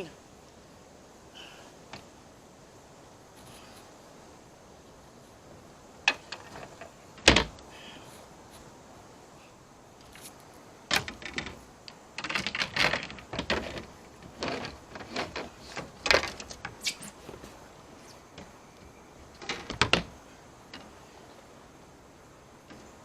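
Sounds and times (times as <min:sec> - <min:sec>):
scraping rustles: 0:03.2 - 0:04.1, 0:10.0 - 0:18.6.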